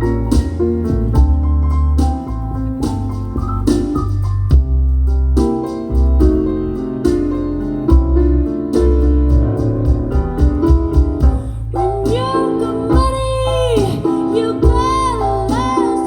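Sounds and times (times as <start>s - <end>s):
light drums: 0.0s - 12.3s
heavy bass line: 0.0s - 15.8s
electric piano chords: 0.0s - 16.0s.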